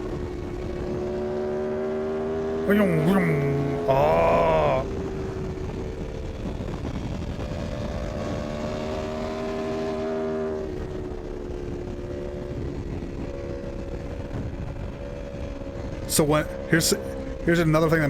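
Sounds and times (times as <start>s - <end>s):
motorcycle engine at high speed: 0.0s - 2.7s, 4.9s - 17.5s.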